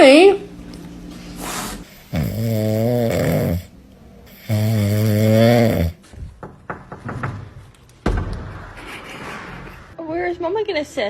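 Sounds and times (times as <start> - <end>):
long loud snores: 1.4 - 6.0.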